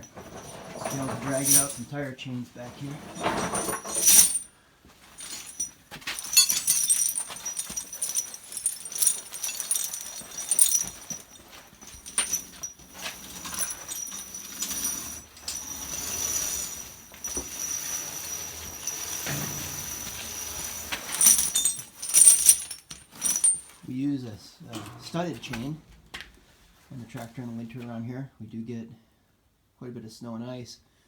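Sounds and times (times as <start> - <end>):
tire chains rattling and clinking: 0.0 - 2.0, 2.8 - 4.5, 5.1 - 23.8.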